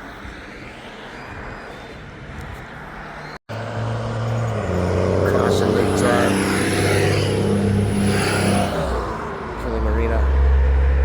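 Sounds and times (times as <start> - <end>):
road noise from bike: 0.0 - 11.0
rushing wind: 0.0 - 11.0
low engine hum: 3.5 - 11.0.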